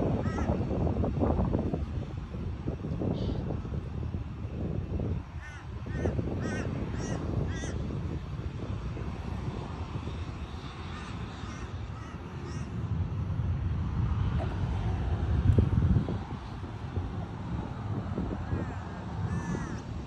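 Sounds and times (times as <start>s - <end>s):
steady low rumble: 0.0s - 20.0s
crow harsh calls: 0.2s - 0.5s, 5.4s - 7.8s, 10.9s - 12.7s, 18.5s - 19.8s.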